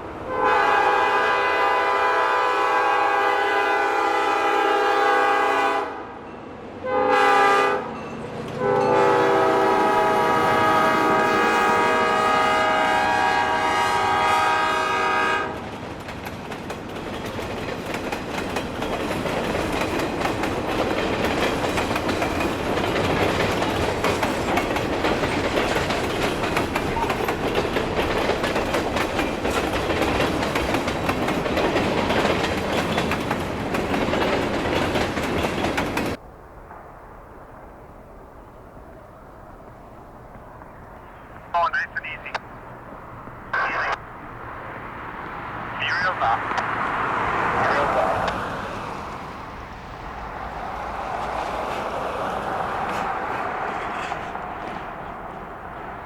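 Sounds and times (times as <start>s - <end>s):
freight train rumbling past: 0.0s - 56.0s
locomotive horn chord: 0.3s - 6.0s, 6.8s - 7.9s, 8.6s - 15.6s
wheels clacking over rail joints: 15.6s - 36.2s, 50.0s - 56.0s.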